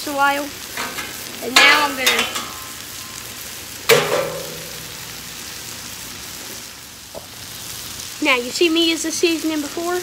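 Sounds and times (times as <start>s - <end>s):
onions sizzling on a griddle: 0.0s - 10.0s
sharp metal clank: 3.9s - 5.1s.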